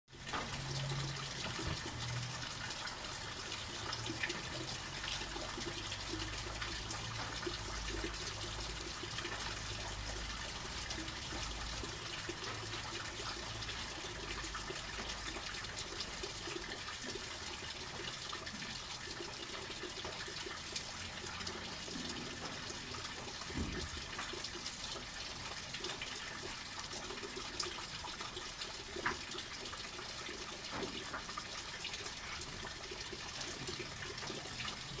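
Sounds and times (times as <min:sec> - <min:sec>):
rain falling on pavement: 0:00.1 - 0:35.0
rainwater splashing down: 0:00.1 - 0:35.0.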